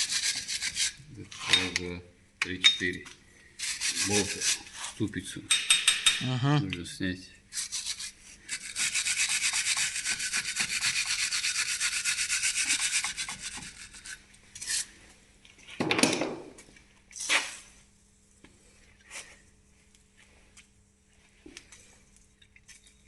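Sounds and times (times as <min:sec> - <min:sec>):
hand tool rasping: 0:03.6 - 0:04.8, 0:07.5 - 0:14.9.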